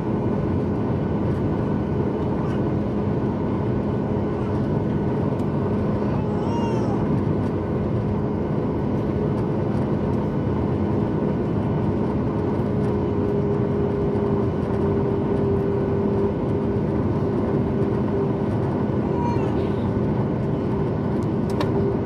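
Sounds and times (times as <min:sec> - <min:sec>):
jet engines and airflow in cabin: 0:00.0 - 0:22.0.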